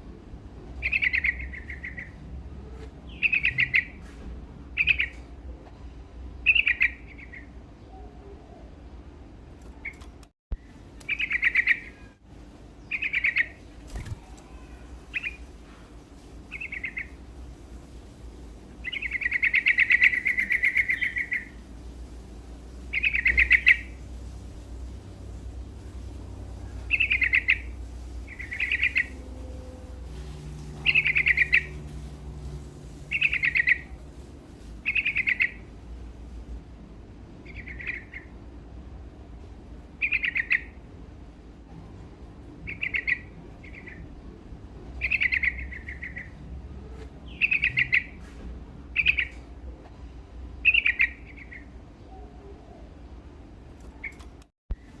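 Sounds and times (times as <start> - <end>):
low steady hum: 0.0 - 55.0
bird singing bubbly phrases: 10.6 - 12.2, 12.8 - 15.4, 16.5 - 17.2, 26.8 - 29.2, 30.8 - 31.8.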